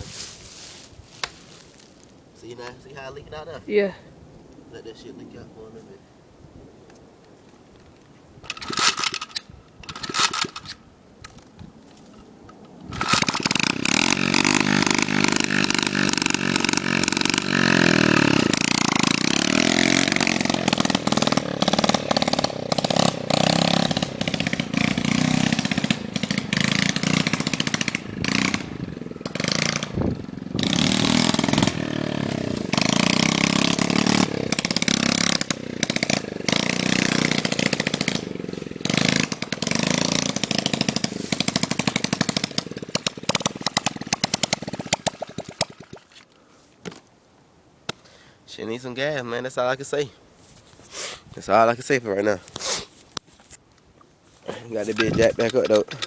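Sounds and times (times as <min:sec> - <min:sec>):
dirt bike engine cranking: 0:08.4 - 0:10.8, 0:12.8 - 0:46.1, 0:54.6 - 0:56.0
dirt bike engine revving: 0:12.9 - 0:46.0.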